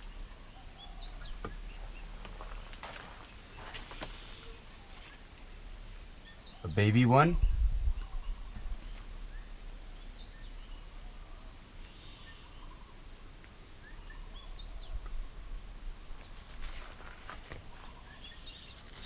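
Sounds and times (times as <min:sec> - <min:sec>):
steady high-pitched whine: 0:00.0 - 0:19.0
wind rumble on microphone: 0:07.3 - 0:08.9.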